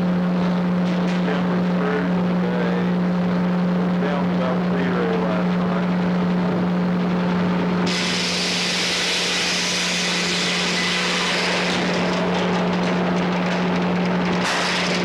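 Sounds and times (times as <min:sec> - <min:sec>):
sawmill humming: 0:00.0 - 0:15.0
saw blade cutting log: 0:07.9 - 0:12.2, 0:14.4 - 0:15.0.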